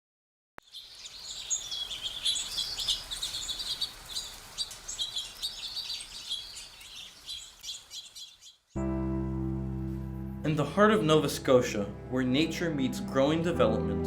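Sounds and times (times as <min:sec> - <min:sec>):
songbirds chirping and singing: 0:00.6 - 0:08.8, 0:11.4 - 0:14.0.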